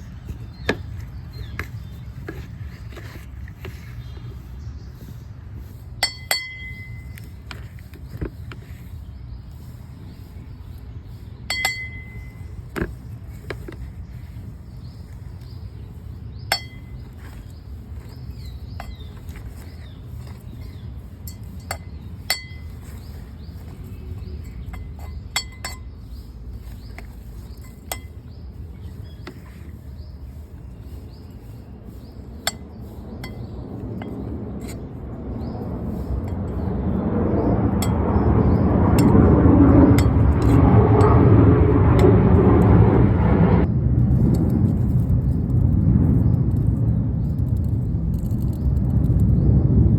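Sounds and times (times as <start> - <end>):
steady low hum: 0.0 - 49.9
light clinks and taps: 6.0 - 8.7, 11.5 - 14.4, 16.5 - 28.4, 32.4 - 34.8.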